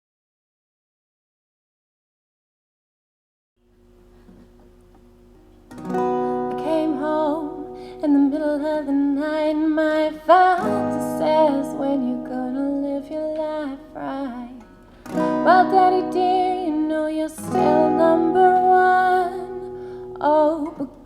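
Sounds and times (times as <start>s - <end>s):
strummed acoustic guitar: 5.7s - 21.0s
person singing wordless melody: 6.3s - 14.6s, 15.3s - 21.0s.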